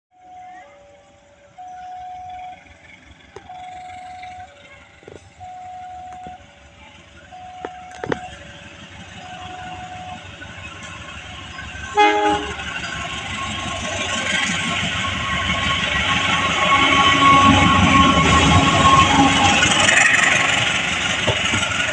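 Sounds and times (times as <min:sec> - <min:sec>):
train running noise: 0:00.2 - 0:21.9
locomotive horn blast: 0:11.9 - 0:12.8, 0:16.1 - 0:20.3.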